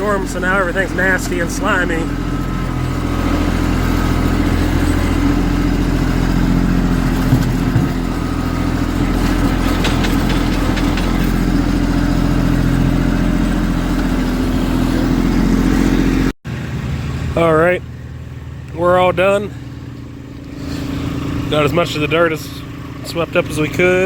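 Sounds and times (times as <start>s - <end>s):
tractor diesel engine running: 0.0s - 24.0s
sharp clicks and rattles: 7.0s - 12.5s
knock: 7.3s - 8.0s.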